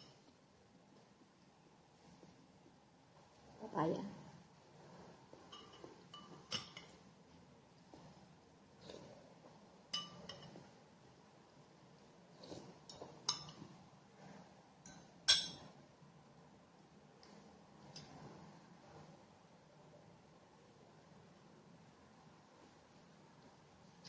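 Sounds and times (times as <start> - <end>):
cutlery clinking on a plate: 5.5 - 7.0, 10.0 - 10.6, 12.9 - 13.7, 14.8 - 15.7.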